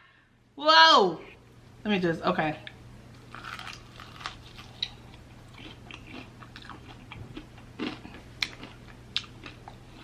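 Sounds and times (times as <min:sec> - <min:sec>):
crunching fried chicken: 0:03.2 - 0:10.0.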